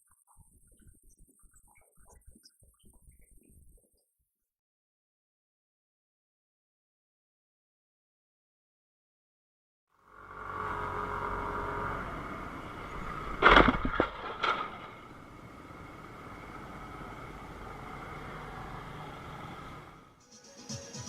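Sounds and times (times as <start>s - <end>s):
car driving noise: 10.0s - 20.2s
car collision impact: 13.4s - 15.0s.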